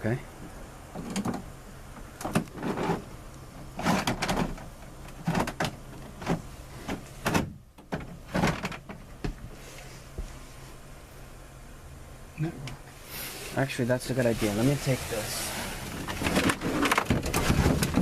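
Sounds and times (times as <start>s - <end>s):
bin lid knocking and rattling: 16.0s - 18.0s.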